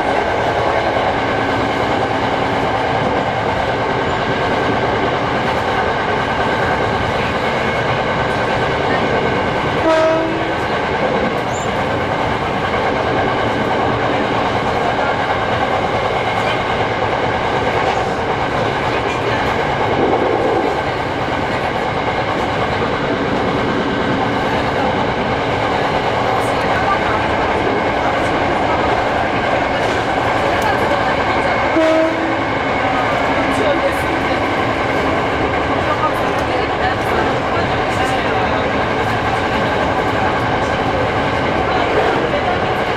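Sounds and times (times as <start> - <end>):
train running noise: 0.0 - 42.9
train wheel clatter: 0.0 - 42.9
train horn blast: 9.8 - 10.6, 31.7 - 32.4.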